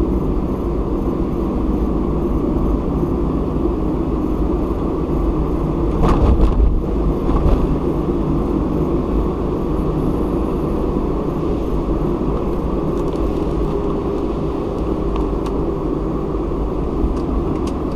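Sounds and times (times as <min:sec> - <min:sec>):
car engine and tyre rumble: 0:00.0 - 0:17.9
car bumps: 0:05.9 - 0:07.7.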